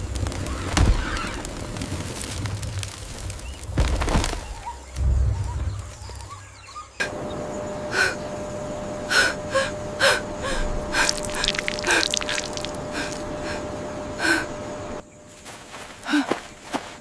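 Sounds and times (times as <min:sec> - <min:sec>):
faint steady hum: 0:07.0 - 0:17.0
short sharp gasping breaths: 0:10.0 - 0:13.6.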